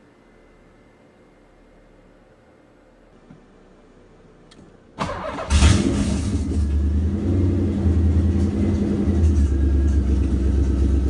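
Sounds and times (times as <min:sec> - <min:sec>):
car engine starting and idling: 0:04.4 - 0:11.0.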